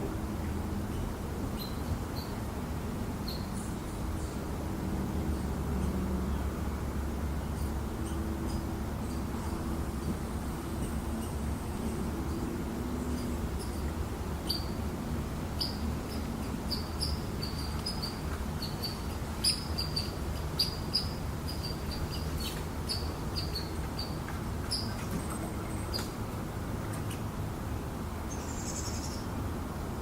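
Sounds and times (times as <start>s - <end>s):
bird chirping: 13.0s - 14.8s, 15.6s - 26.1s, 28.3s - 29.3s.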